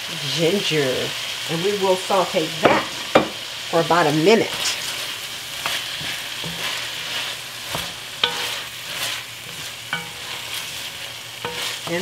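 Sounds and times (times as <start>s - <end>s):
vegetables sizzling in pan: 0.0s - 12.0s
spoon knocking against pan: 2.6s - 3.4s, 9.9s - 10.4s
wooden spoon stirring and scraping: 4.3s - 12.0s.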